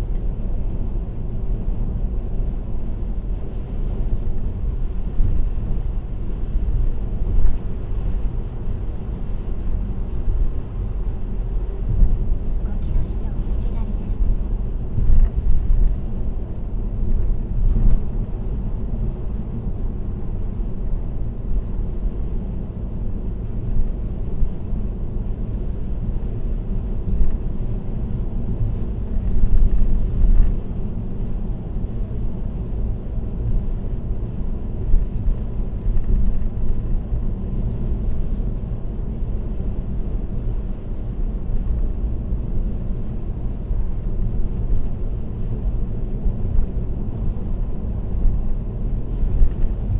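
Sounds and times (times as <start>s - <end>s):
road and tyre noise: 0.0s - 49.9s.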